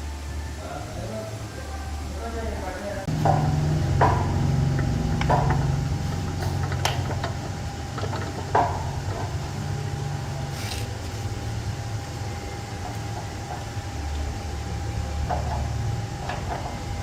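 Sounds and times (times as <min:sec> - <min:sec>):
faint whine: 0:00.0 - 0:17.0
low machine hum: 0:00.0 - 0:17.0
sharp knocks: 0:03.1 - 0:09.4.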